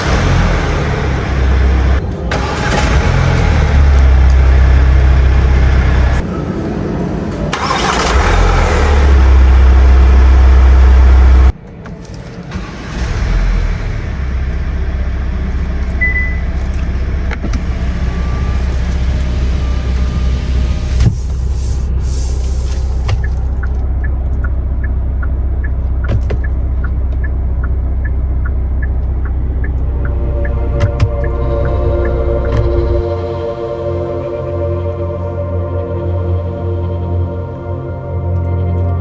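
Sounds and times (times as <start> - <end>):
diesel engine idling: 0.0 - 6.3, 7.5 - 11.6, 12.6 - 39.0
light ticking: 22.8 - 32.8.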